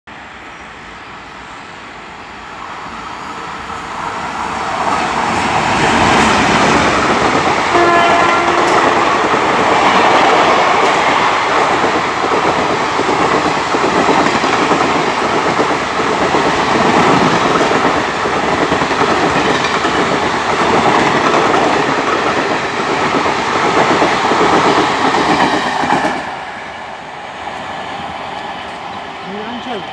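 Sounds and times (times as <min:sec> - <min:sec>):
train wheels clattering over rail joints: 0:08.4 - 0:26.3.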